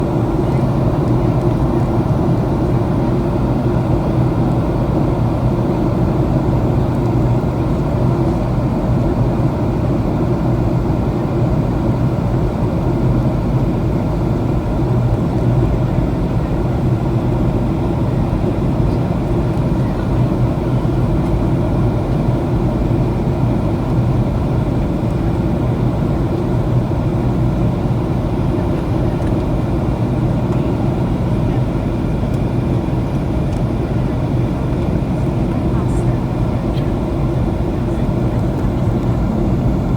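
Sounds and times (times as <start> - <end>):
jet engine drone: 0.0 - 39.9
steady low hum: 19.6 - 39.9.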